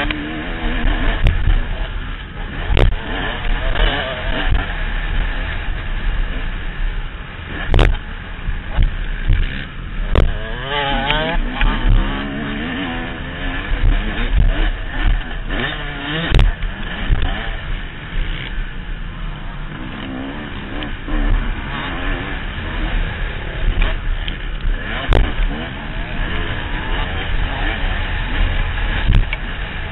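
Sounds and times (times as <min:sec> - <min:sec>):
motorbike engine revving: 0:00.0 - 0:29.9
wind rumble on microphone: 0:00.0 - 0:29.9
sharp knocks: 0:10.1 - 0:10.4.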